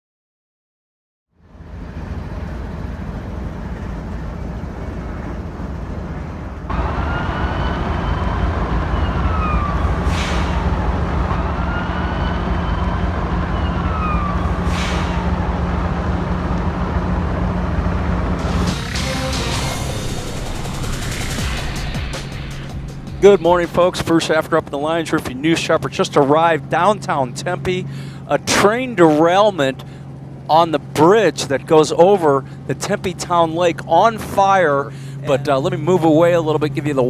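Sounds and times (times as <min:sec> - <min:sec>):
low engine rumble: 0:01.3 - 0:37.0
emergency vehicle siren wailing: 0:01.4 - 0:32.7.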